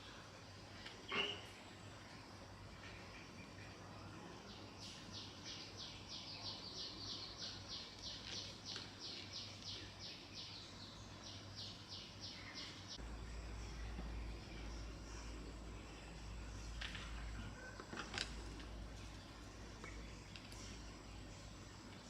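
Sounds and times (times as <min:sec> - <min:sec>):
faint low hum: 0:00.0 - 0:22.0
bird chirping: 0:02.8 - 0:16.6.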